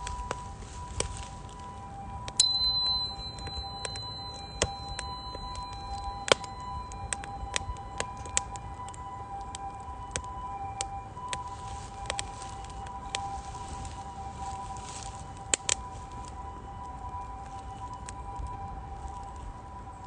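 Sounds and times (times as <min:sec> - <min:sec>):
higher ringing note: 0:00.0 - 0:09.5
two-note ringing tone: 0:00.0 - 0:10.2
firewood crackling and popping: 0:00.0 - 0:20.0.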